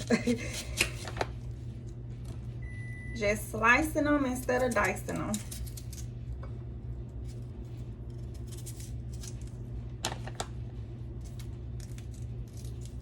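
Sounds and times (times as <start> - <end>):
knife slicing onion on board: 0.0 - 1.3.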